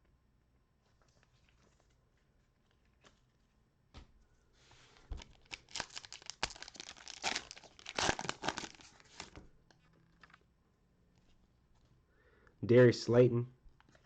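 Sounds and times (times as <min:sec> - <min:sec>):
wrapper torn open and crinkled: 0:05.1 - 0:09.4.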